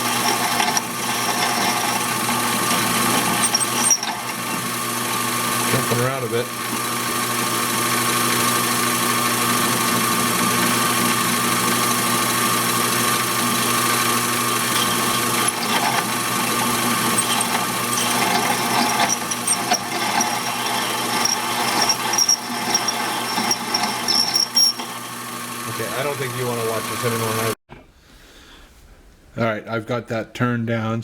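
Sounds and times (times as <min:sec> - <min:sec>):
ticking of lathe tool: 0:00.0 - 0:05.8, 0:06.6 - 0:25.6
lathe motor whine: 0:00.0 - 0:27.6
high squeal of chattering tool: 0:00.1 - 0:04.4, 0:14.6 - 0:25.2.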